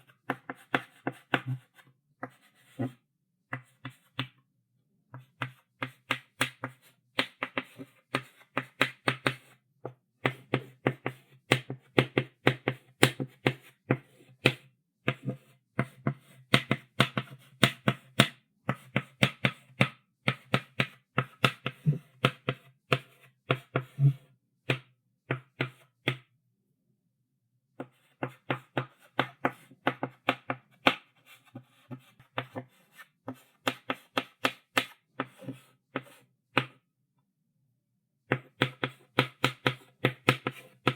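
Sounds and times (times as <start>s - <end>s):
chalk tapping on blackboard: 0.2s - 2.9s, 5.1s - 9.5s, 10.2s - 23.9s, 27.8s - 36.8s, 38.3s - 40.9s.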